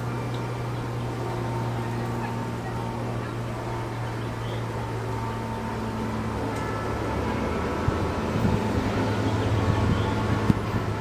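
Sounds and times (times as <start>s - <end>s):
train running with low drone: 0.0s - 11.0s.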